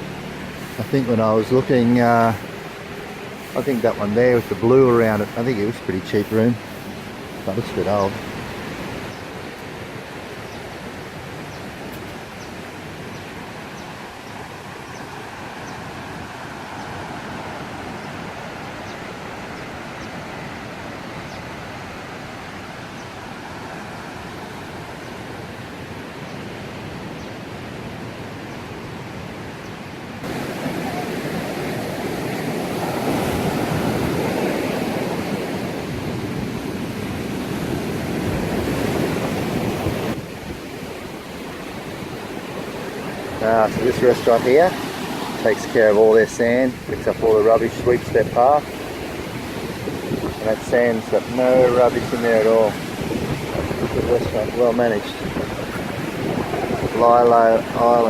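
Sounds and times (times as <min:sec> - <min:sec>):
sea waves washing on beach: 0:00.0 - 0:58.0
wind on microphone: 0:30.2 - 0:58.0.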